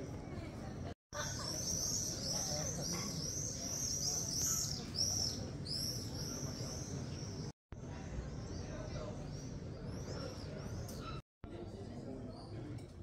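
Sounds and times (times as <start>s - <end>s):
small birds chirping: 1.2s - 11.2s.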